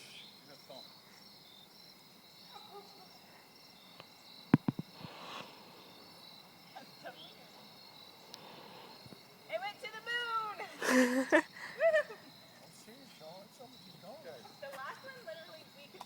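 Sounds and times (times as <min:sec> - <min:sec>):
insects chirring: 0:00.0 - 0:16.0
short hiss: 0:04.6 - 0:06.2.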